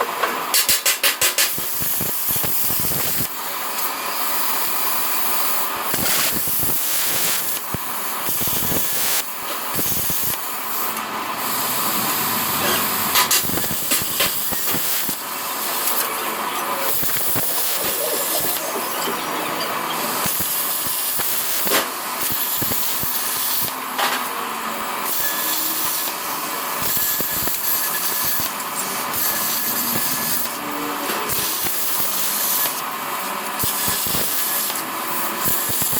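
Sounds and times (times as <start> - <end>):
plasma cutter hissing and crackling: 0.5 - 23.8, 25.0 - 30.6, 31.2 - 32.9, 33.5 - 35.9.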